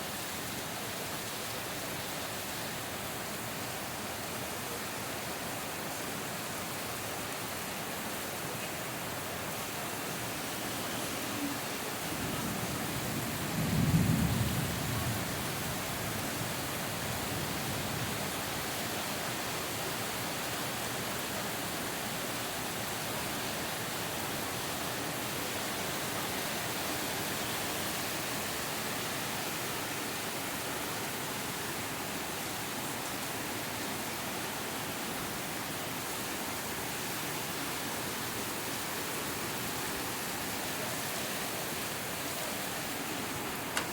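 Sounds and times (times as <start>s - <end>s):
steady rain: 0.0s - 43.9s
thunder clap rumbling: 12.1s - 15.3s.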